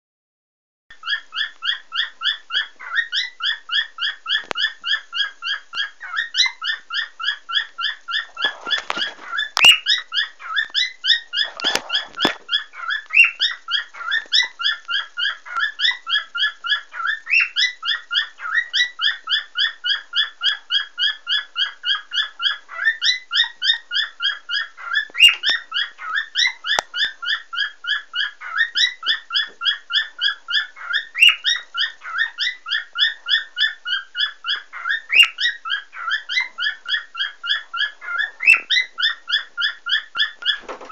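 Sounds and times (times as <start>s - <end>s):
cockatiel chirping: 0.9s - 40.9s
rustling: 8.2s - 9.9s, 10.6s - 13.2s, 40.2s - 40.9s.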